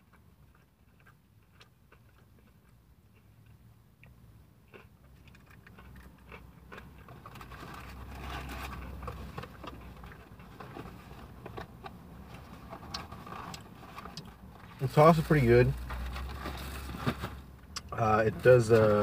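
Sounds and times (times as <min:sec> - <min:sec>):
person chewing crispy fried chicken: 0:00.0 - 0:14.8.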